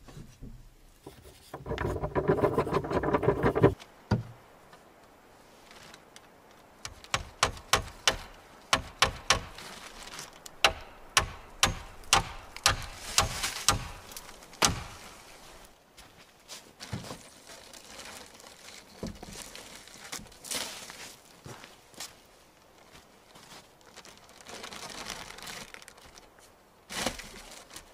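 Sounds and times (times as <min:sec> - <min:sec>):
plastic tarp rustling: 0:05.5 - 0:06.0, 0:09.5 - 0:10.5, 0:16.5 - 0:21.2, 0:22.8 - 0:27.9
sharp knocks on wood: 0:07.1 - 0:09.6, 0:10.6 - 0:14.0, 0:14.6 - 0:15.0.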